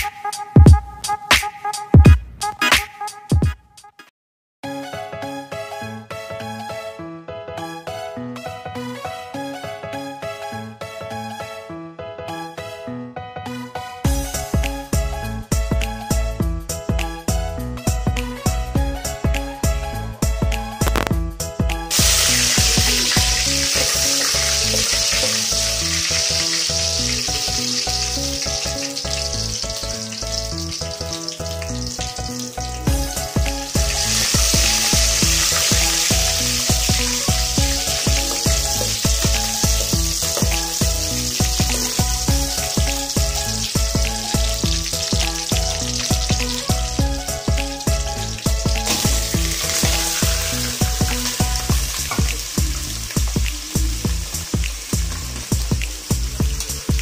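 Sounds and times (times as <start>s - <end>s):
background music with a beat: 0.0s - 4.1s, 14.0s - 57.0s
food sizzling in a pot: 21.9s - 57.0s.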